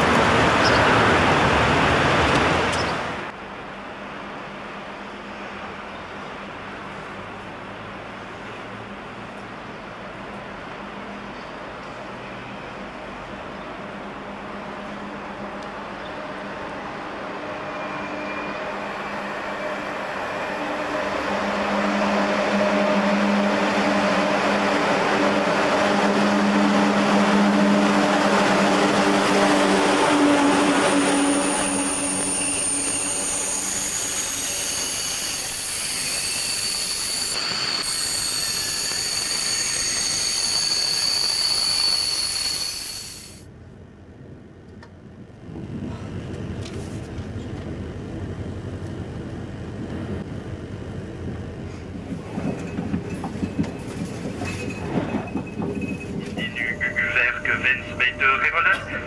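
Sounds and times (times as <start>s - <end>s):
train rumble and hum: 0.0s - 59.0s
high-pitched brake squealing: 17.6s - 20.7s, 30.6s - 43.4s.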